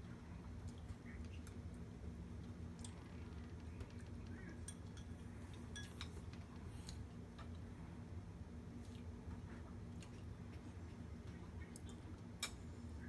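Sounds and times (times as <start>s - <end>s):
steady low hum: 0.0s - 13.0s
utensils clinking against dishes: 4.6s - 6.2s.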